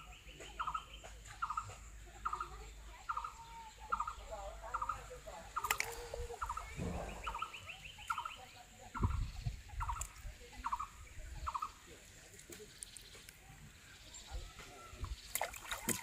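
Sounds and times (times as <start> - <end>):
low thud: 6.7 - 7.4.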